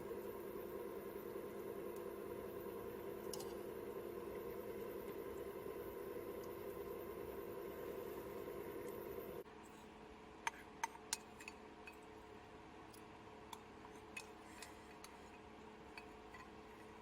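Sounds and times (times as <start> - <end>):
louder steady sound: 0.0 - 9.4
faint steady hum: 0.0 - 17.0.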